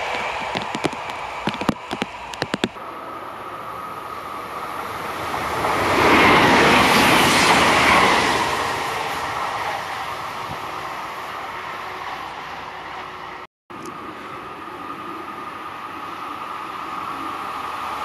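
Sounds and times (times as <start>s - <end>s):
wheels clicking over rail joints: 0.0s - 2.8s
electric train rumbling past: 0.0s - 18.0s.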